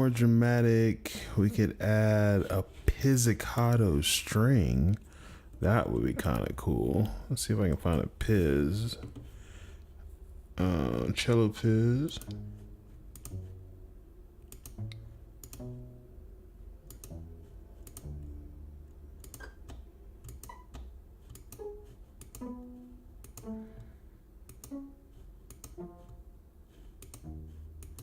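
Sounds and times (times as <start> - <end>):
cello pizzicato notes: 19.8 - 24.1, 24.7 - 28.0.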